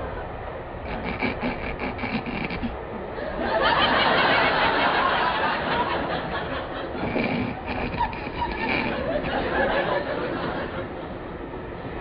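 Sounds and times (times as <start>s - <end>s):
train rumbling and clattering: 0.0s - 12.0s
studio audience laughter: 3.2s - 7.2s, 7.9s - 11.2s.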